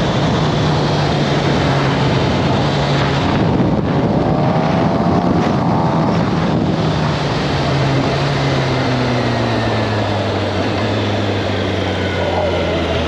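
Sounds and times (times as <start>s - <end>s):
motorcycle engine running: 0.0s - 13.0s
wind noise on microphone: 0.0s - 13.0s.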